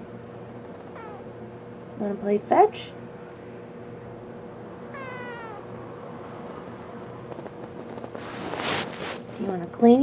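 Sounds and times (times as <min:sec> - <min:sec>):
kitten meowing: 0:00.9 - 0:01.3, 0:04.9 - 0:05.7.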